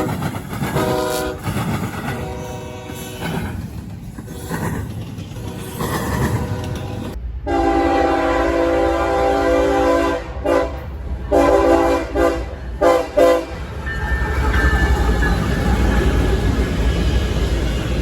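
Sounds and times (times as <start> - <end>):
passing train rumbling and rattling: 0.0 - 18.0
locomotive air horn blasts: 0.8 - 1.5, 2.1 - 3.2, 6.4 - 13.6.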